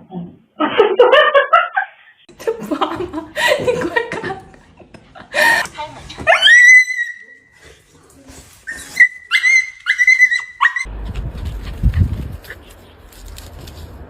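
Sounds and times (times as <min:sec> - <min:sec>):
dog whining: 0:08.7 - 0:10.9.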